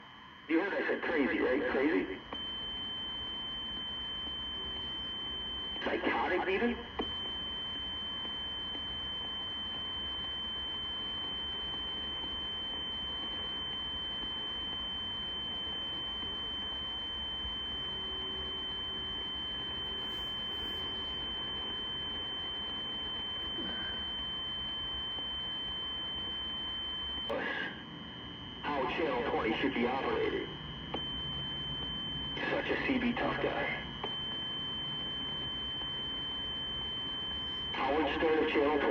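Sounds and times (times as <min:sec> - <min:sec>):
radio static: 0:00.5 - 0:02.3, 0:05.8 - 0:07.0, 0:27.3 - 0:28.0, 0:28.6 - 0:31.1, 0:32.4 - 0:34.2, 0:37.7 - 0:38.9
high-pitched radio tone: 0:00.5 - 0:02.5, 0:05.6 - 0:07.2, 0:17.6 - 0:24.5, 0:27.0 - 0:38.9.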